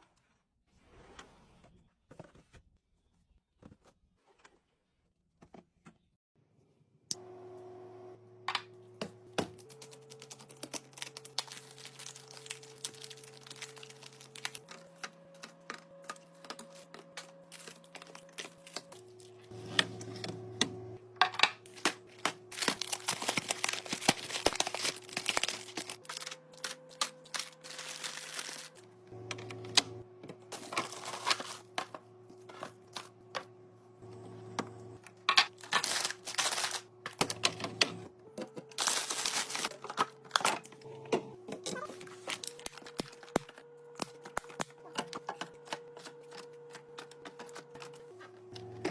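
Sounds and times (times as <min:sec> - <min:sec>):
food packages clicking and crinkling: 0:09.4 - 0:20.1, 0:21.2 - 0:33.5, 0:35.1 - 0:40.9, 0:41.5 - 0:48.9.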